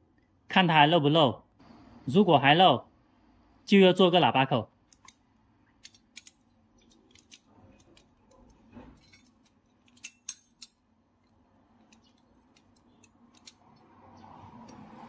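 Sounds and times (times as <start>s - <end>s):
metallic clicks of hand tools: 4.9s - 5.2s, 5.8s - 14.0s.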